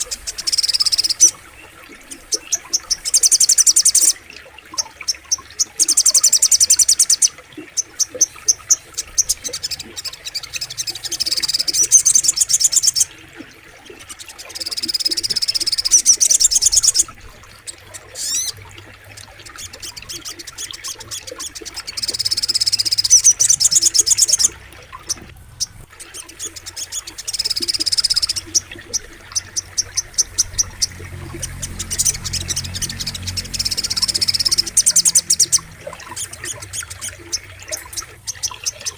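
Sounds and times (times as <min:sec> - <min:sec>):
bird trilling high-pitched: 0:00.0 - 0:01.4, 0:14.6 - 0:17.2, 0:18.2 - 0:18.6, 0:21.8 - 0:38.9.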